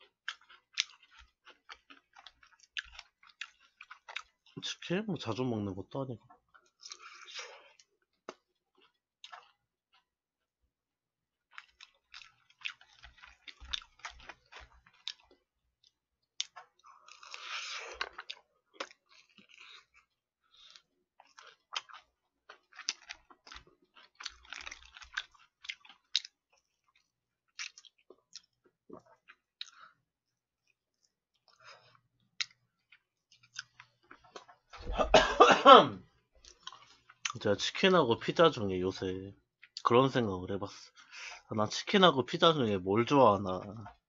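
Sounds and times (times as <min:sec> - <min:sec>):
person chewing crunchy food: 0:00.0 - 0:04.8, 0:06.2 - 0:10.2, 0:11.4 - 0:35.2, 0:36.4 - 0:37.5.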